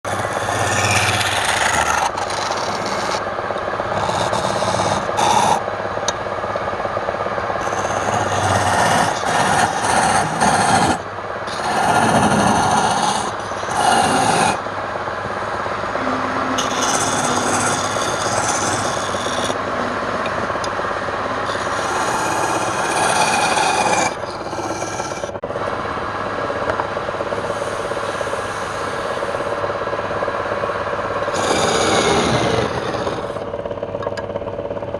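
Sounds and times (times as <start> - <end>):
wood being rasped and sanded: 0.0 - 3.2, 3.9 - 5.6, 7.6 - 14.6, 16.6 - 19.6, 21.5 - 25.4, 31.3 - 33.4.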